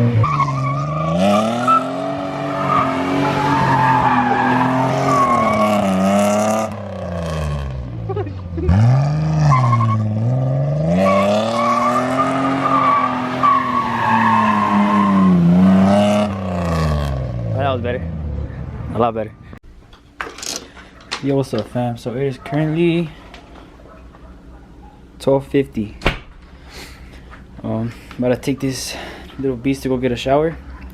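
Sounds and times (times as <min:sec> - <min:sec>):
tires squealing: 0:00.0 - 0:07.8, 0:08.6 - 0:17.3
car engine revving: 0:00.0 - 0:18.8.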